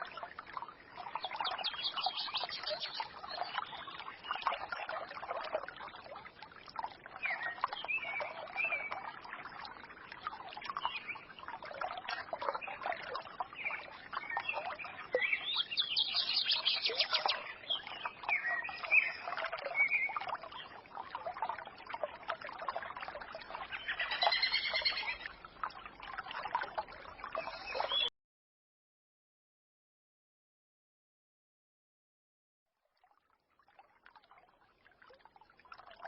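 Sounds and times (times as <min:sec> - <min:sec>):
trickling stream: 0:00.0 - 0:28.1, 0:32.7 - 0:36.0
songbirds chirping: 0:00.1 - 0:05.8, 0:07.0 - 0:20.9, 0:23.2 - 0:25.4, 0:26.6 - 0:28.1.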